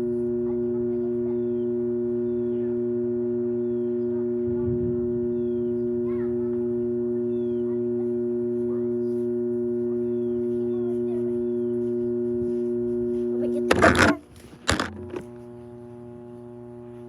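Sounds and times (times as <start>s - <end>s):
machine hum: 0.0s - 17.0s
birds chirping: 3.6s - 4.3s, 5.2s - 6.4s, 7.2s - 7.8s, 10.0s - 12.1s.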